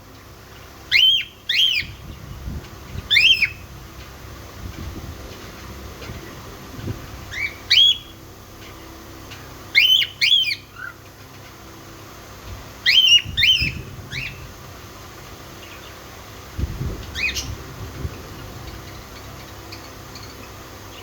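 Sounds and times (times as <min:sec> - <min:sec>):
parrots chirping: 0:00.9 - 0:02.1, 0:03.1 - 0:03.7, 0:07.2 - 0:08.8, 0:09.7 - 0:11.0, 0:12.8 - 0:14.5, 0:17.1 - 0:17.7.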